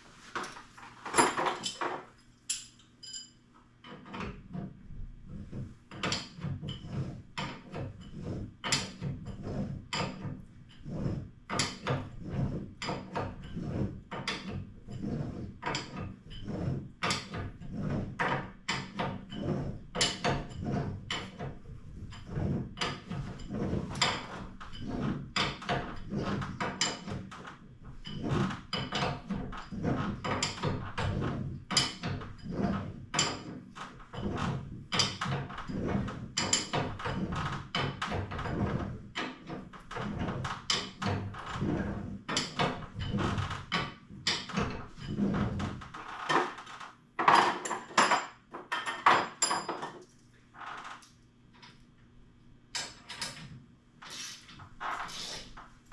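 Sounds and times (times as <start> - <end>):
knocks and clanks on metal hardware: 0.4 - 4.3, 47.2 - 50.0.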